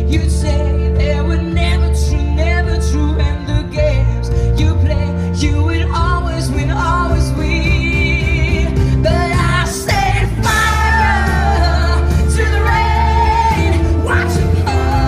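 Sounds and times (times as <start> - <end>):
band accompaniment with heavy bass: 0.0 - 15.0
woman singing pop ballad: 0.0 - 15.0.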